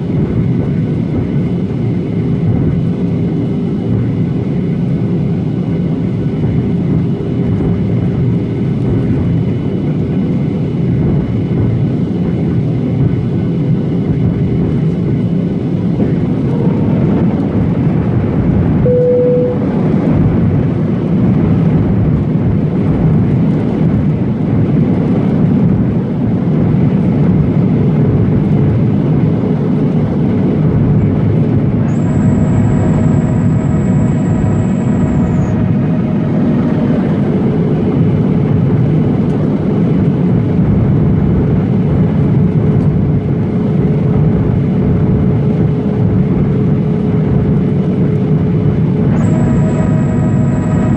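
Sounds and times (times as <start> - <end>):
airplane cabin engine noise: 0.0 - 50.9
high multi-tone whine: 18.8 - 20.1, 31.8 - 38.9, 49.0 - 50.9
single cabin tone: 18.8 - 20.2, 31.8 - 38.7, 49.1 - 50.9.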